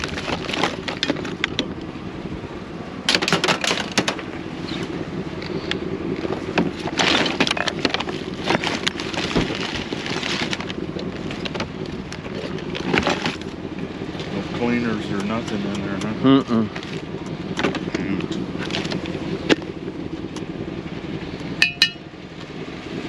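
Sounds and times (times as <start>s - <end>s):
plastic and metal junk clattering: 0.0s - 1.7s, 3.1s - 4.2s, 6.5s - 13.5s
low hum: 0.0s - 23.0s.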